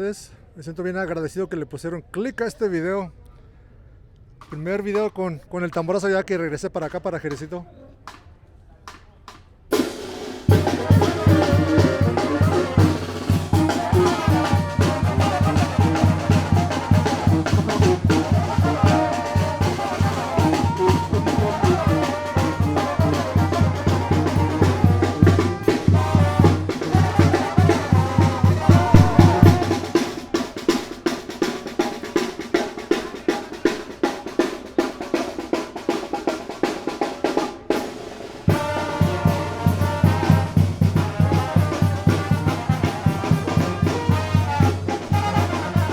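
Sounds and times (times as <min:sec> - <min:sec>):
snare drum: 0:08.9 - 0:45.9
brass band playing: 0:09.7 - 0:45.9
bass drum pounding: 0:10.4 - 0:30.1.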